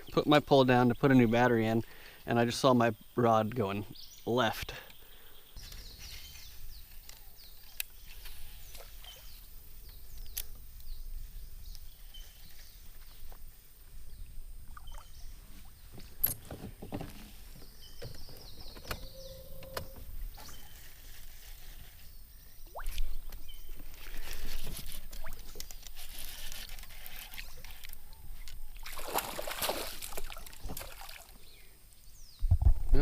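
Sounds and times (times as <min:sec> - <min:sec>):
knocks and clicks of kayak gear: 0:15.9 - 0:20.1.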